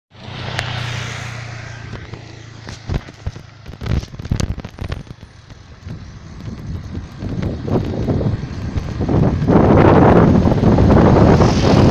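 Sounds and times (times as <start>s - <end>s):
phone rattling in bike holder: 2.0s - 5.5s.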